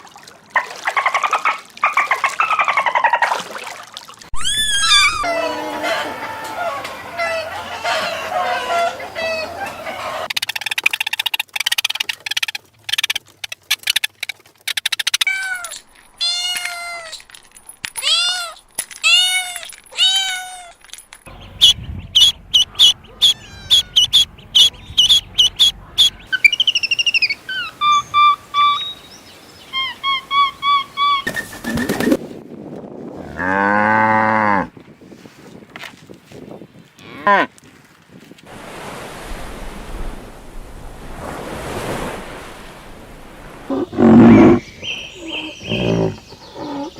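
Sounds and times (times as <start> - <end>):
fast high chirping and warbling: 4.4 - 5.3, 21.4 - 29.0
long wavering animal call: 4.4 - 10.3
arched animal calls: 4.4 - 10.7, 21.3 - 29.0, 43.6 - 46.9.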